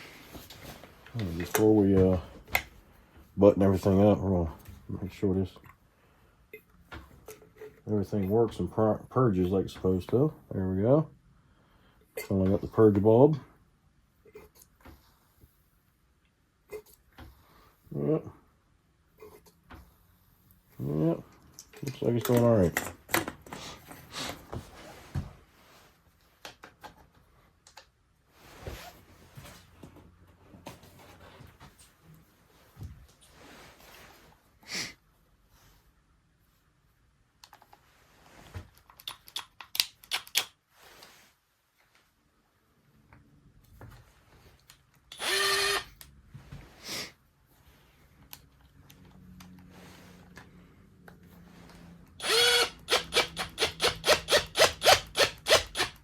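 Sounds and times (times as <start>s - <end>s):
plastic parts clicking: 38.8s - 40.6s
cordless drill whirring: 45.1s - 46.0s, 52.2s - 56.0s.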